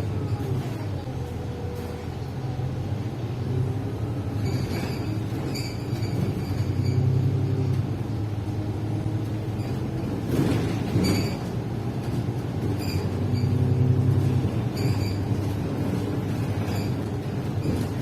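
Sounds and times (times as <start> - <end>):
vehicle interior rumble: 0.0 - 18.0
squeaks and rattles: 4.3 - 7.8, 9.3 - 18.0.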